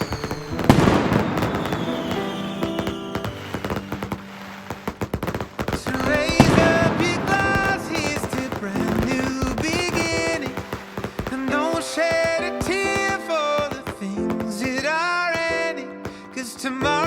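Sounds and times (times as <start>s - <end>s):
fireworks bangs and crackles: 0.0s - 17.0s
instrumental pop music: 0.0s - 17.0s.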